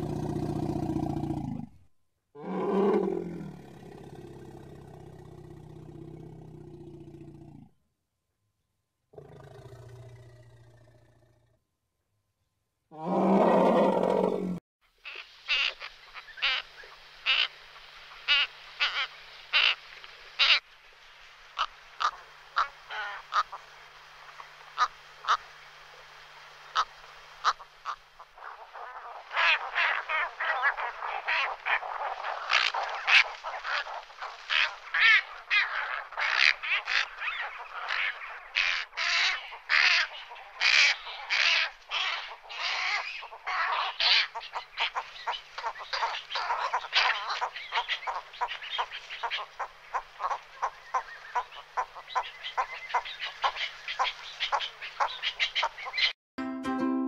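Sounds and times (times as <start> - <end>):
chorus of quick bird calls: 13.4 - 56.2.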